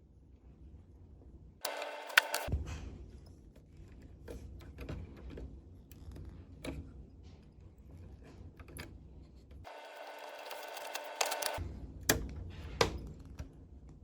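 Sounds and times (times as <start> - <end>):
hand tools clicking and tapping: 9.7 - 11.6.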